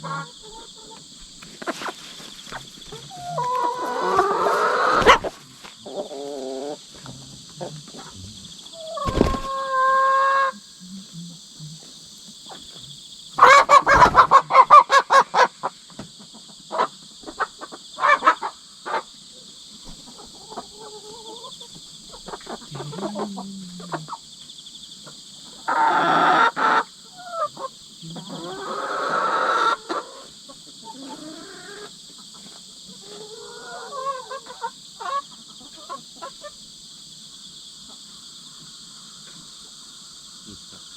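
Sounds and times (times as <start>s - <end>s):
hens squawking: 0.0s - 1.0s, 1.6s - 6.8s, 7.6s - 10.6s, 13.4s - 15.5s, 22.1s - 24.2s, 25.6s - 31.9s
insects chirring: 0.0s - 40.9s.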